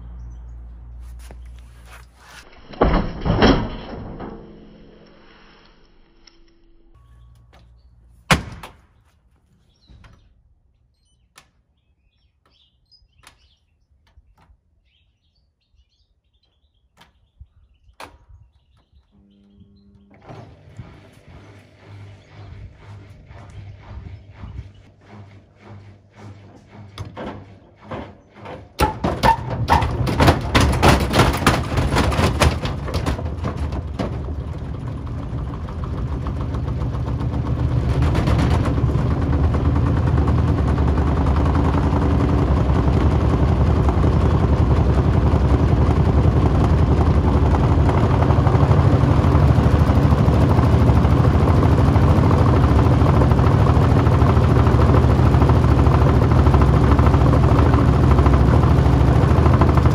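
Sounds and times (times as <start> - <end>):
washing machine spin hum: 19.2 - 59.9.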